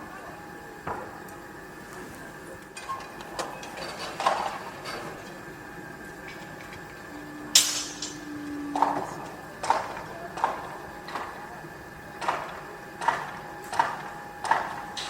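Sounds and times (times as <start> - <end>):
steady background hum: 0.0 - 15.0
metallic clanks and knocks: 7.5 - 11.2.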